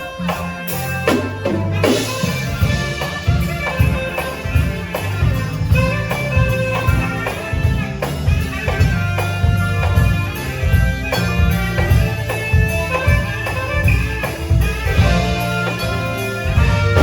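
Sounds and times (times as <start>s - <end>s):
bass: 0.0s - 17.0s
drums: 0.0s - 17.0s
live band music: 0.0s - 17.0s.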